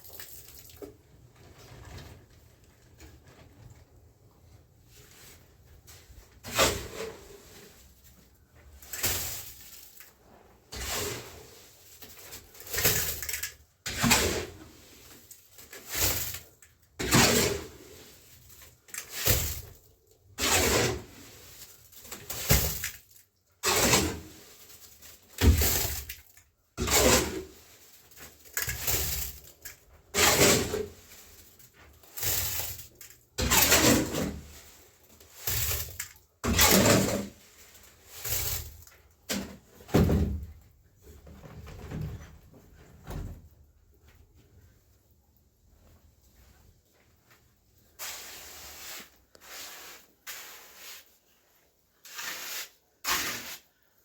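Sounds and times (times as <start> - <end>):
hand tool scraping wet cement: 6.4 - 10.0, 10.7 - 23.0, 23.6 - 39.6, 47.9 - 54.0.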